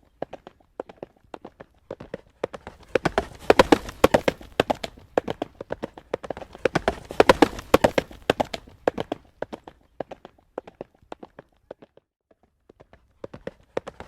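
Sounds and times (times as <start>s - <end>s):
horse hooves trotting on road: 0.0s - 14.0s.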